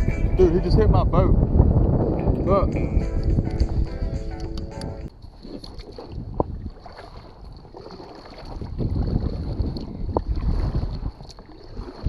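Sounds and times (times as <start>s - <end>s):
microphone handling noise: 0.0s - 6.7s
wind rumble: 0.0s - 12.0s.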